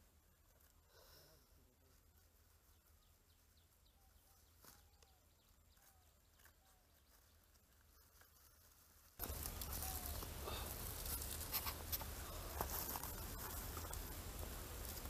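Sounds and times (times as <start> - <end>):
faint bird calls: 2.7 - 14.2.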